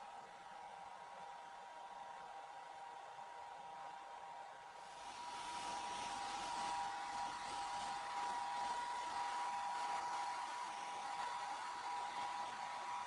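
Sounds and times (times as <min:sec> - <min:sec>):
hair dryer blowing: 0:04.8 - 0:13.0.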